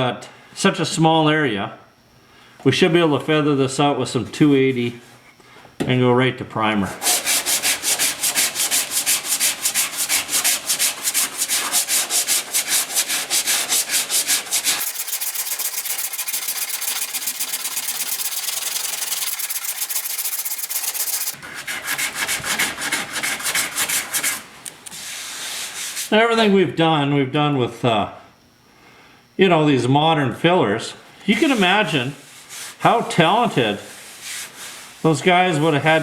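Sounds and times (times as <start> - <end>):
sandpaper rubbing on filler: 7.0 - 26.1, 31.3 - 36.0.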